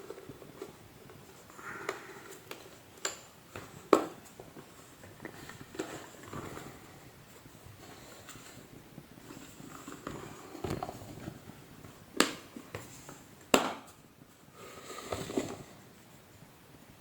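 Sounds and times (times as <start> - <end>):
parts rustling and clattering: 0.0 - 13.3.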